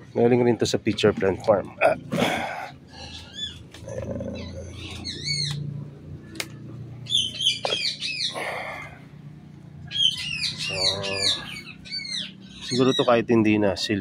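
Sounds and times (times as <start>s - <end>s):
small birds chirping: 2.5s - 14.0s
lower bird call: 9.8s - 13.1s.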